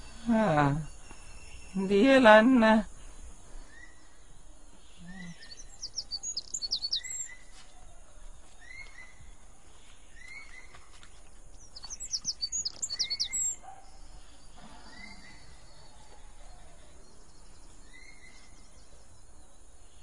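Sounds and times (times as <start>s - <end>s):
rapid high bird chirps: 4.9s - 7.5s, 11.6s - 14.1s.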